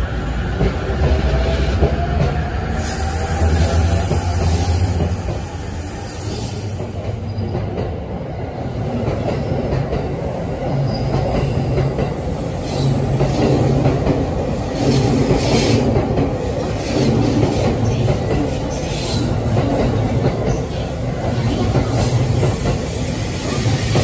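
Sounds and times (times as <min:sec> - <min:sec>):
electric train wheels rumbling on rails: 0:00.0 - 0:24.0.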